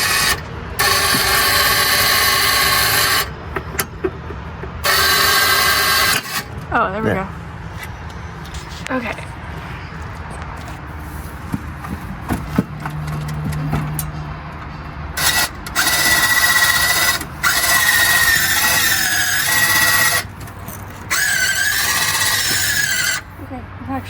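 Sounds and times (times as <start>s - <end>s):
electric motor whining: 0.0s - 3.9s, 4.8s - 7.3s, 15.2s - 23.4s.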